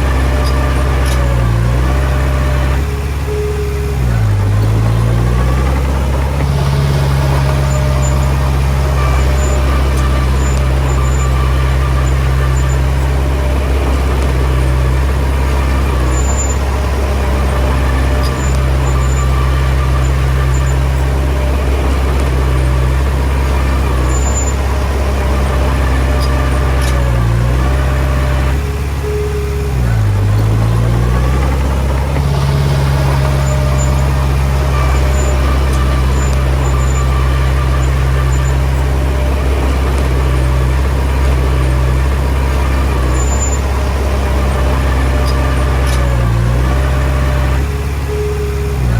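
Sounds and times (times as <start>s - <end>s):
bulldozer diesel engine running: 0.0s - 48.9s
faint high squeaks: 0.0s - 48.9s.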